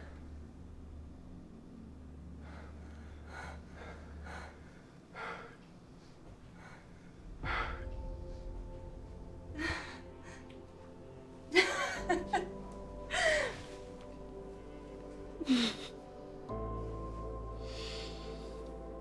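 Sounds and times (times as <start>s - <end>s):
low rumble: 0.0s - 19.0s
person breathing heavily: 2.4s - 19.0s
sustained steady tones: 7.1s - 15.4s.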